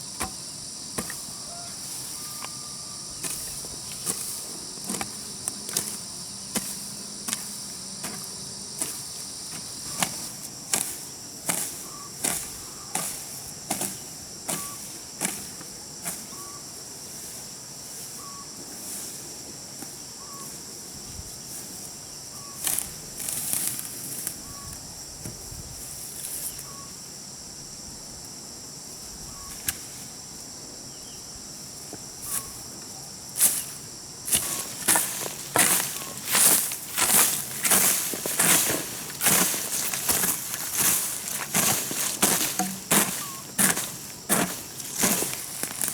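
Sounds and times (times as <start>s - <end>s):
insects buzzing: 0.0s - 45.9s
hoe chopping into soil: 0.1s - 1.6s, 3.2s - 16.2s, 34.3s - 45.9s.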